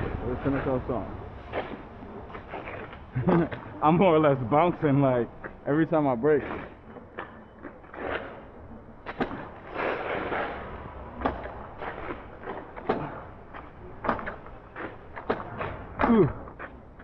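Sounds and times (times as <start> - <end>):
wind noise: 0.0 - 5.4
tyre noise on wet road: 0.0 - 17.0
bike knocks and clatters: 11.2 - 14.5.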